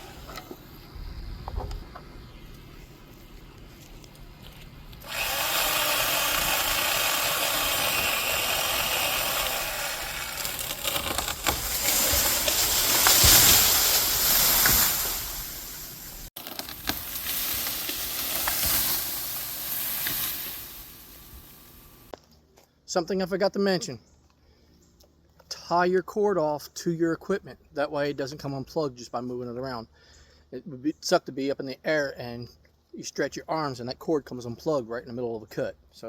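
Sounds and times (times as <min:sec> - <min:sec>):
electric chainsaw cutting wood: 0:05.0 - 0:15.4.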